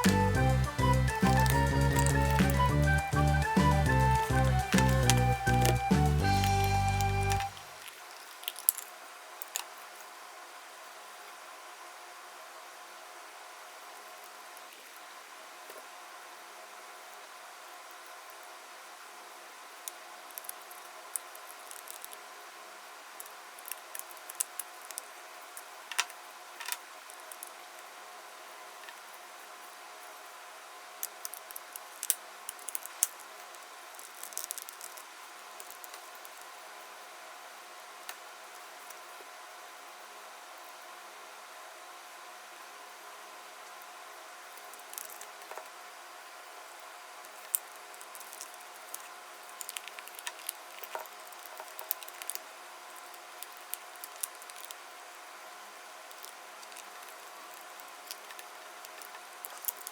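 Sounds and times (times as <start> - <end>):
aquarium air pump humming: 0.0 - 7.8
small clicks and pops: 0.0 - 9.7, 34.0 - 36.4.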